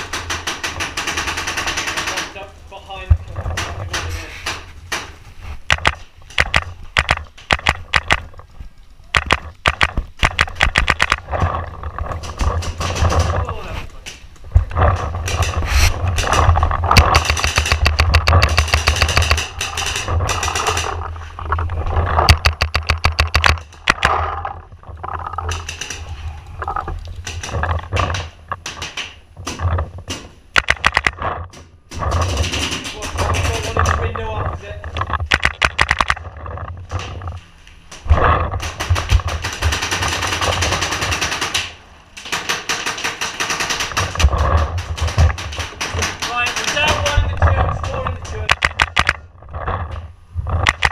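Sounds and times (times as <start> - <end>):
paintball markers firing: 5.7 - 8.3, 9.2 - 11.2, 14.8 - 21.0, 22.2 - 24.2, 27.3 - 31.3, 35.2 - 36.2, 38.0 - 47.3.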